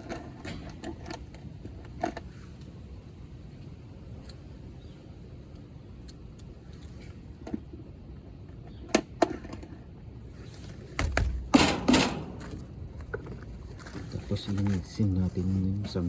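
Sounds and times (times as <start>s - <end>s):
pipe scraping and rustling: 10.3s - 16.0s.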